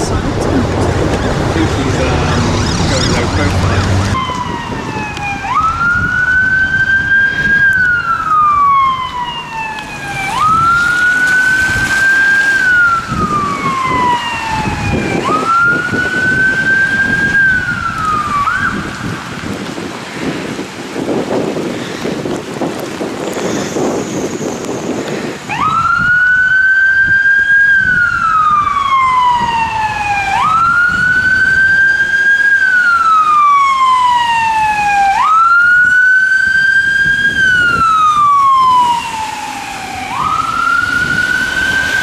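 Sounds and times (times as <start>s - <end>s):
emergency vehicle siren wailing: 0.0s - 19.9s, 22.9s - 42.0s
rushing wind or road noise: 0.0s - 42.0s.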